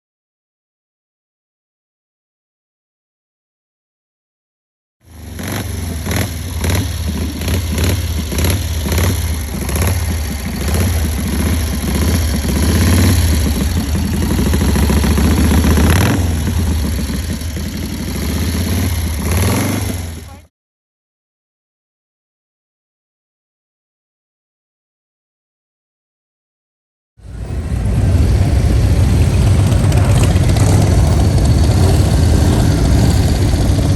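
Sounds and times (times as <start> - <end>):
large engine rumbling and revving: 5.1 - 20.5, 27.2 - 33.9.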